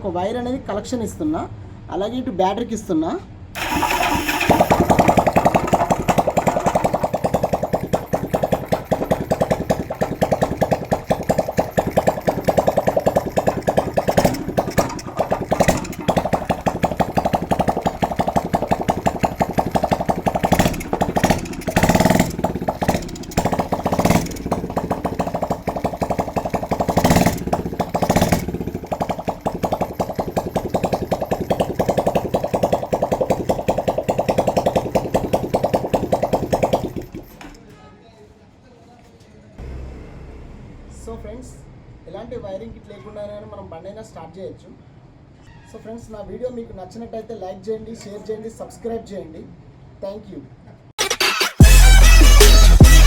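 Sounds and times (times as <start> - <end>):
motorcycle engine running: 3.6 - 37.6, 51.6 - 53.0.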